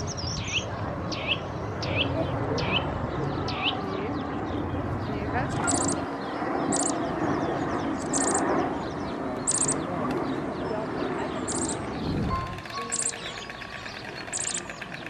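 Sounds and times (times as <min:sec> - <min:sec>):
background chatter: 0:00.3 - 0:15.0
high bird chirps: 0:05.6 - 0:07.0, 0:08.0 - 0:08.6, 0:09.4 - 0:09.8, 0:11.4 - 0:15.0.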